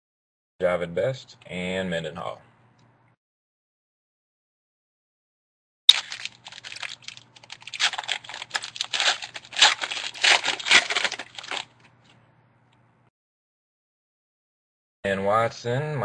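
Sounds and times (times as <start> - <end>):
wrapper tearing and crinkling: 5.9 - 11.8.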